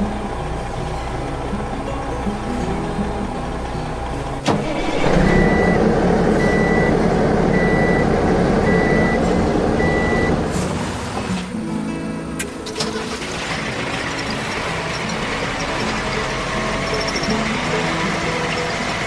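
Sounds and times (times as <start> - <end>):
background music: 0.0 - 19.0
heavy vehicle engine running: 0.0 - 19.0
engine start click: 0.6 - 11.5, 12.4 - 19.0
reversing alarm beeps: 4.7 - 10.5.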